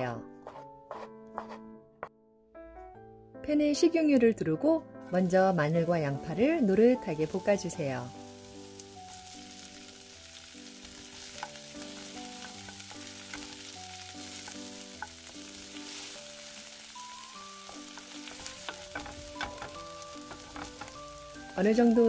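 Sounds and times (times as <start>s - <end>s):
soft background music: 0.0s - 22.0s
spatula taps and scrapes: 0.4s - 1.7s
garlic and onion sizzling in oil: 5.0s - 22.0s.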